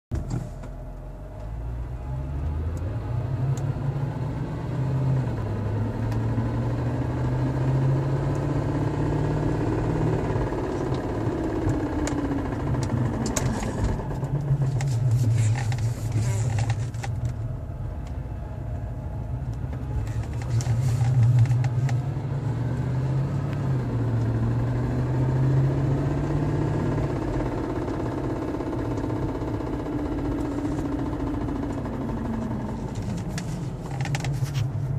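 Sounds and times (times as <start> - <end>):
car engine running: 0.1 - 34.9.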